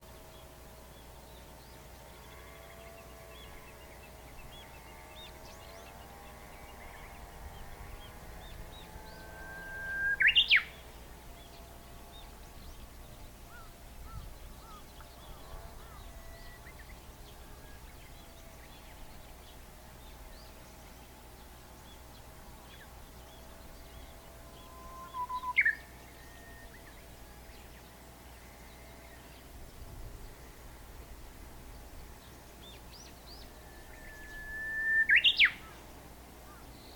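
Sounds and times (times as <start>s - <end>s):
bush warbler whistling song: 2.6s - 30.7s, 31.6s - 36.9s
faint small bird chirps: 9.2s - 10.9s, 23.8s - 27.8s, 32.7s - 35.9s.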